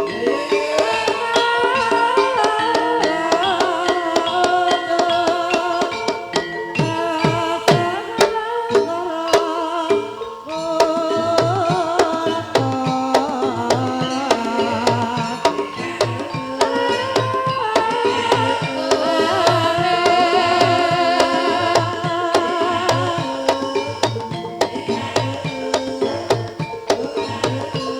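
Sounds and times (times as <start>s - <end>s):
wavering melodic lines: 0.0s - 27.9s
hand drum strokes: 10.8s - 27.9s.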